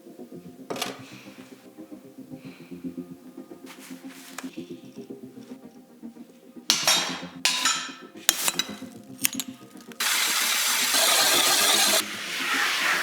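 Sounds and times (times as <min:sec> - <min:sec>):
quiet background music: 0:00.0 - 0:13.0
scraping strokes: 0:03.6 - 0:05.6, 0:07.5 - 0:13.0
power tool running: 0:10.0 - 0:12.1.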